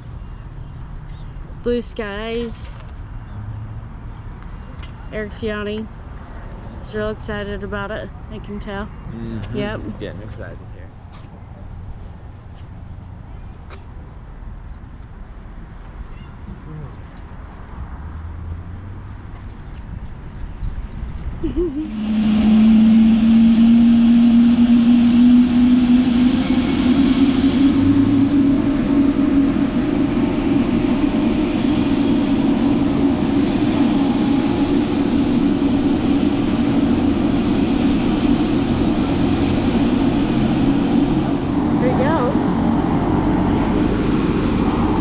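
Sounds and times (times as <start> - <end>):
helicopter engine and rotor drone: 21.8 - 45.0.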